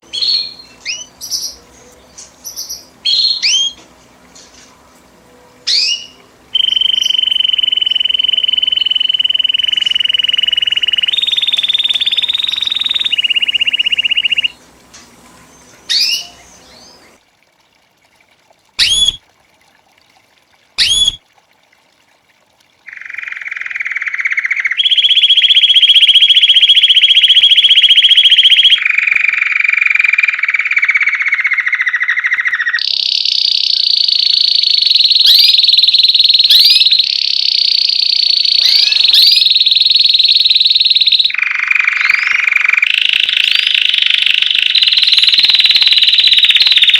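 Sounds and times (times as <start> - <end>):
canary singing trilled rolls: 5.7 - 14.6, 18.8 - 19.2, 20.8 - 21.2, 22.9 - 29.2, 30.0 - 41.4, 42.0 - 46.9.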